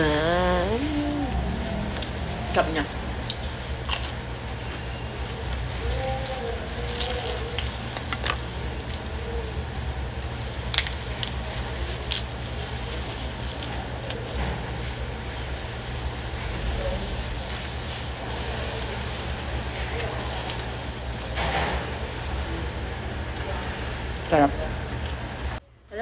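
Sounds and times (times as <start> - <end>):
steady background hum: 0.0 - 26.0
crunchy lettuce chewing: 0.8 - 14.9, 15.8 - 23.5.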